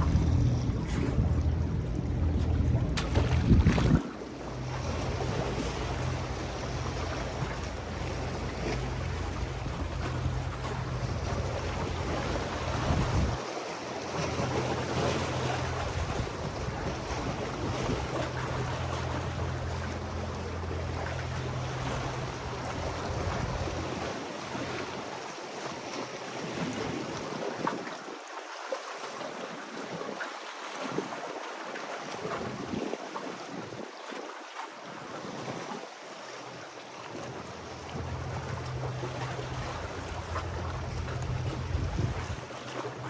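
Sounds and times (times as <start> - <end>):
wind buffeting microphone: 0.0 - 13.5, 14.1 - 24.9, 37.1 - 43.0
waves: 0.0 - 43.0.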